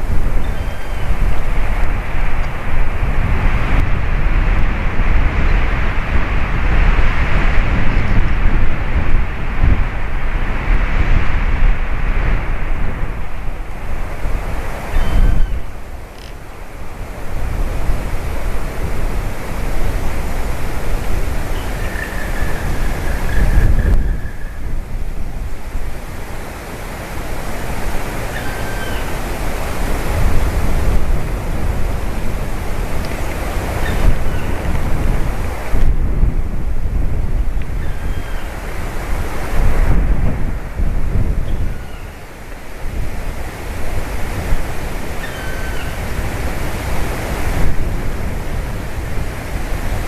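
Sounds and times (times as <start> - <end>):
wind buffeting microphone: 0.0 - 50.0
faint bird call: 0.4 - 1.2, 14.9 - 16.4, 28.2 - 29.2, 45.2 - 46.0.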